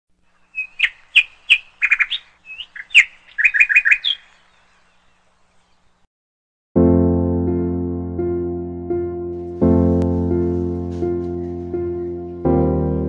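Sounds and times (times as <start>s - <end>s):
songbird chirping: 0.1s - 6.1s.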